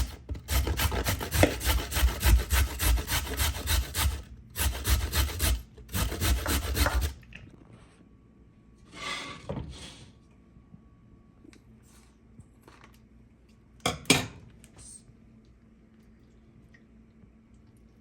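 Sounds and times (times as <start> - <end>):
carrots grated on metal grater: 0.0 - 7.2.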